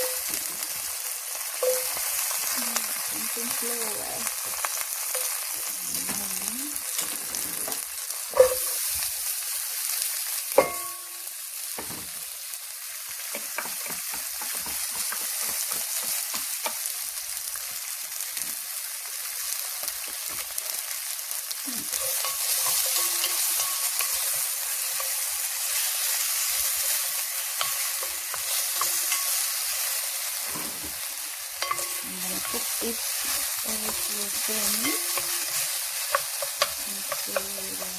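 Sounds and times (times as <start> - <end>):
onions sizzling in a frying pan: 0.0 - 37.9
utensil knocking against pan: 13.4 - 16.8.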